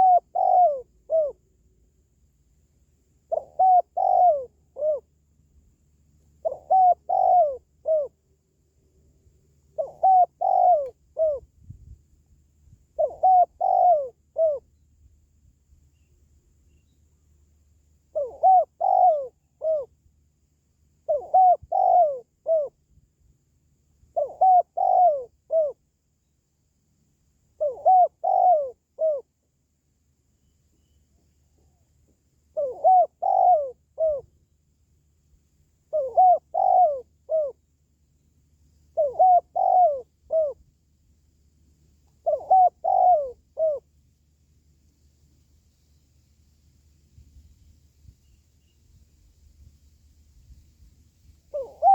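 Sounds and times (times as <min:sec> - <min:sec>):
dove cooing: 0:00.0 - 0:01.4, 0:03.3 - 0:05.1, 0:06.4 - 0:08.2, 0:09.8 - 0:11.5, 0:13.0 - 0:14.7, 0:18.1 - 0:19.9, 0:21.0 - 0:22.8, 0:24.2 - 0:25.8, 0:27.6 - 0:29.3, 0:32.5 - 0:34.3, 0:35.9 - 0:37.6, 0:38.9 - 0:40.6, 0:42.1 - 0:43.9, 0:51.5 - 0:51.9.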